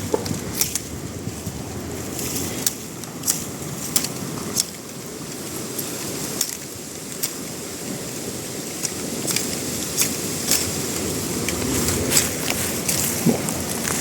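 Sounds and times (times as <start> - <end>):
steady background rush: 9.4 - 14.0.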